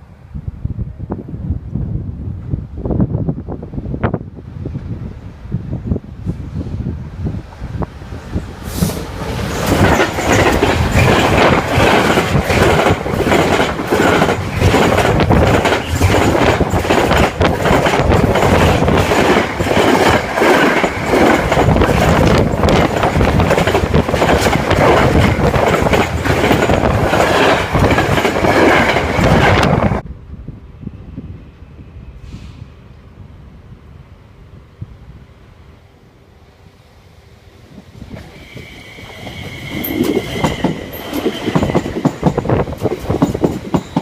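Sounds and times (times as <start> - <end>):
train rushing noise: 0.0 - 44.0
train wheels clattering over rail joints: 8.8 - 30.0, 38.1 - 44.0.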